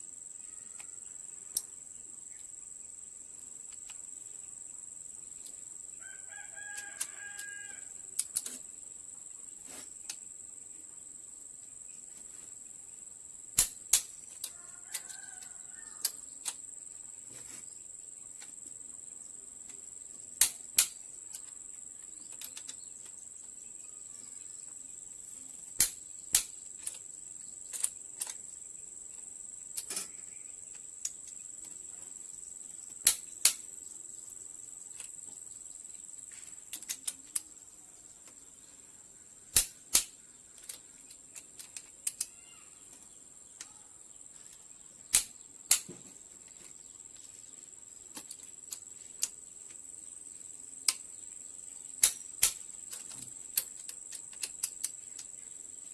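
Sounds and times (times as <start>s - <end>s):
metallic clicks of hand tools: 6.7s - 8.7s, 13.6s - 16.6s, 20.4s - 21.6s, 22.2s - 23.2s, 25.7s - 27.0s, 27.6s - 28.4s, 29.7s - 31.8s, 32.9s - 33.7s, 36.3s - 37.5s, 39.5s - 42.4s, 45.1s - 46.0s, 48.1s - 49.8s, 50.8s - 51.1s, 52.0s - 55.4s.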